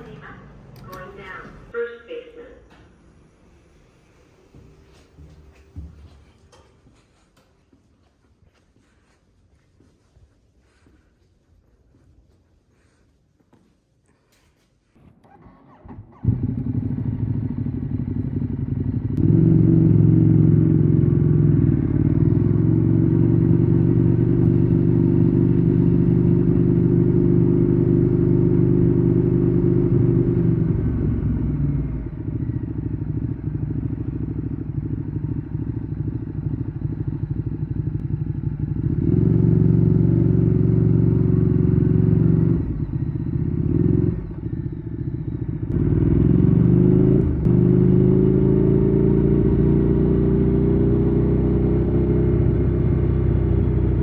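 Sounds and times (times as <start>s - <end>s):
motorcycle engine running: 0.0s - 1.8s, 15.3s - 54.0s.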